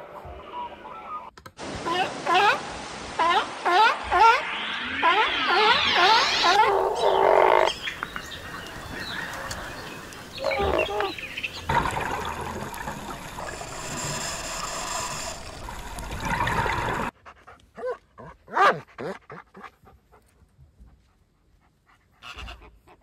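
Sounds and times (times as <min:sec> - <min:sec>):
water lapping: 0:08.2 - 0:17.1
dog panting softly: 0:19.6 - 0:23.0.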